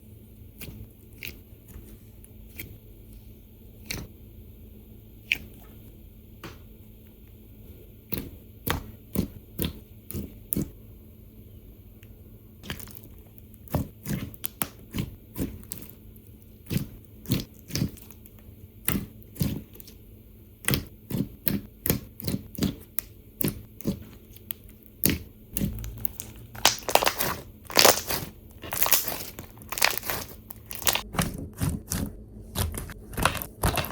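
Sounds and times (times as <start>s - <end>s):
bead-filled slime clicking and popping: 20.6s - 32.0s.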